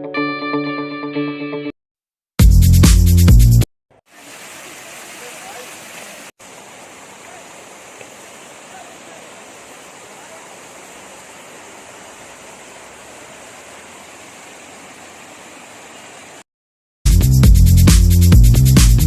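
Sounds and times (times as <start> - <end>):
running water rushing: 4.0 - 16.4
electronic music with heavy beat: 17.1 - 19.0.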